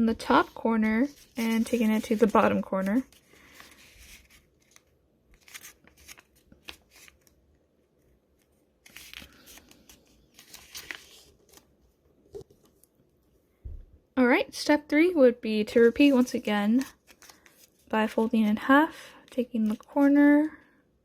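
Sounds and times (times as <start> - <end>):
paper rustling as folded: 0.2 - 12.9, 15.8 - 18.6.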